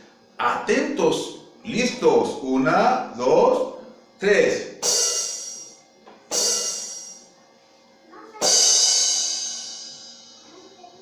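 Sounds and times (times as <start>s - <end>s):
cymbal crash: 4.8s - 5.7s, 6.3s - 7.2s, 8.4s - 10.4s.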